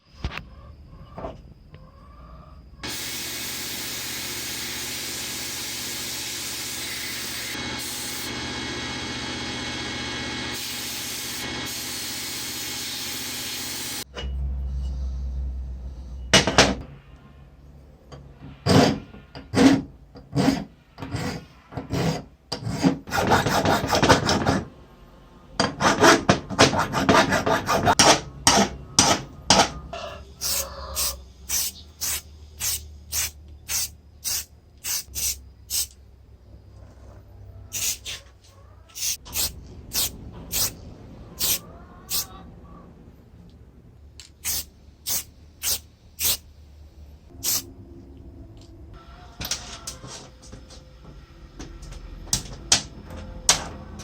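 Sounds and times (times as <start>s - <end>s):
hand filing back and forth: 19.5s - 24.6s, 25.8s - 28.0s.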